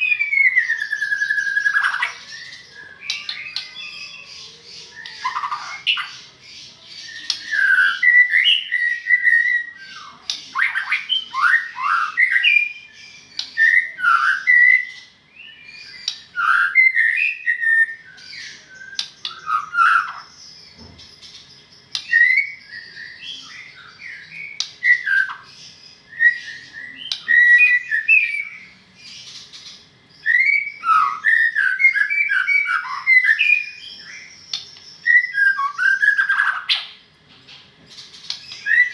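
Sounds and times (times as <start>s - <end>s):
songbird singing whistled phrases: 0.0s - 20.8s, 21.8s - 37.0s, 38.0s - 38.9s.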